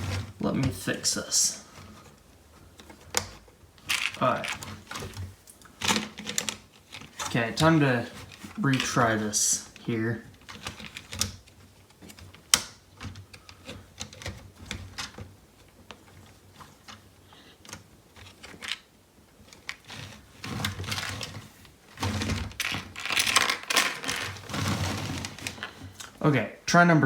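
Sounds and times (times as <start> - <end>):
plastic toy bricks clicking: 3.2 - 4.7, 22.6 - 25.7.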